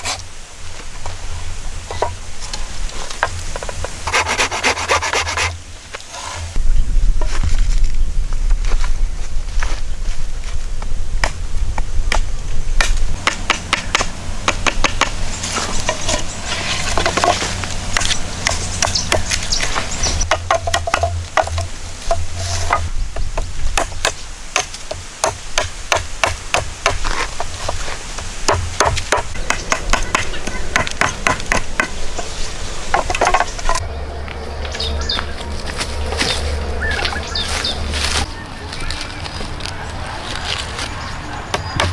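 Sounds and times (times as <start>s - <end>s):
low steady rumble: 30.4s - 38.2s.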